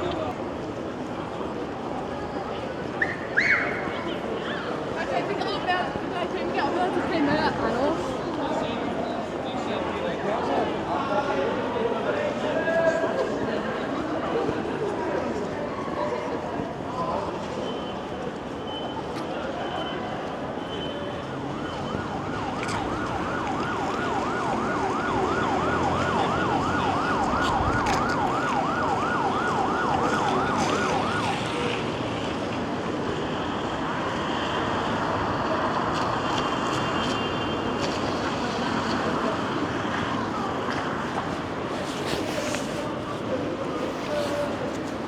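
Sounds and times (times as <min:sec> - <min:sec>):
traffic: 0:00.0 - 0:45.0
rain: 0:21.1 - 0:41.4
emergency siren yelping: 0:21.4 - 0:32.0.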